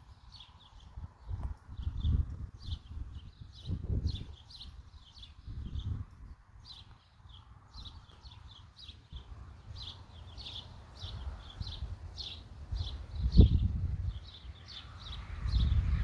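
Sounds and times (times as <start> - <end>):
bird chirping: 0.0 - 16.0
low rumbles on microphone: 0.6 - 6.8, 12.8 - 14.3, 15.0 - 16.0.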